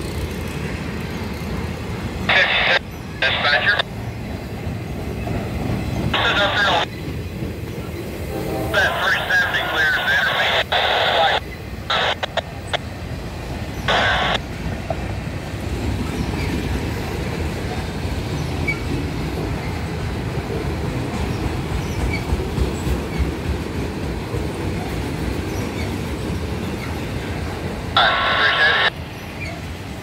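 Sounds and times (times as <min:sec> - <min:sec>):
freight train cars rolling past: 0:00.0 - 0:30.0
scanner radio noise bursts: 0:02.3 - 0:03.9, 0:06.2 - 0:06.9, 0:08.7 - 0:12.9, 0:13.8 - 0:14.4, 0:28.0 - 0:29.0.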